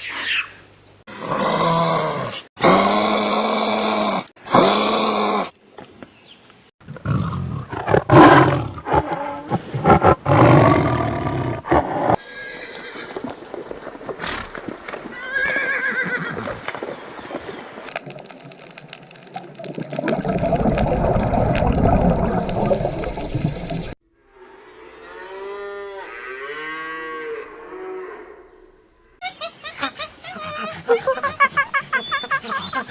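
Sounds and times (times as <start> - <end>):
horse whinnying: 11.9 - 13.3, 15.1 - 16.6.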